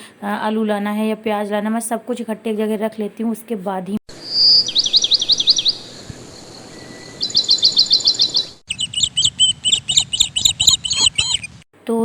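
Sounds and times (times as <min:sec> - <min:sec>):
small bird whistling chirps: 0:04.1 - 0:11.6.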